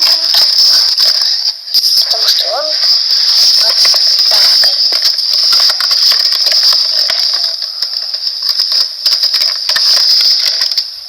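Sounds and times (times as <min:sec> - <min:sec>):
steady high-pitched whine: 0:00.0 - 0:11.0
plastic clicks and rattling: 0:03.3 - 0:11.0.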